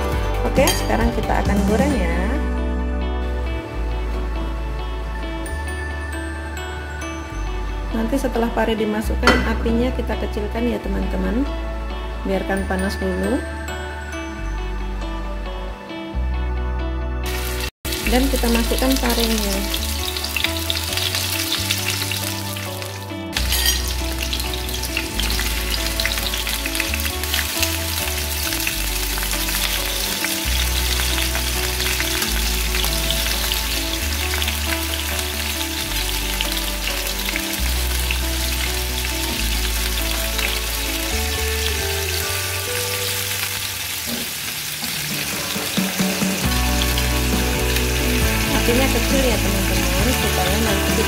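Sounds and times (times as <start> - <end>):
background music with bass: 0.0 - 44.1, 44.9 - 51.0
food sizzling in frying pan: 17.3 - 51.0.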